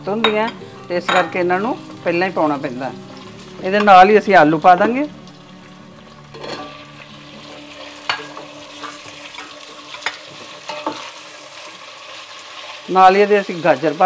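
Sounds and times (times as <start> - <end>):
oil sizzling in a pot: 0.0 - 14.0.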